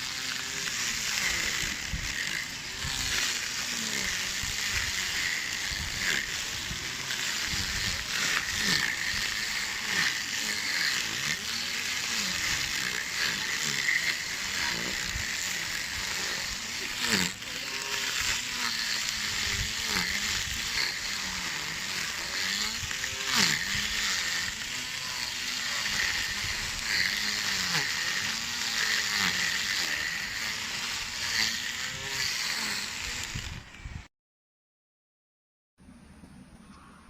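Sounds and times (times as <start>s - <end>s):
lawn mower motor running: 0.0s - 34.0s.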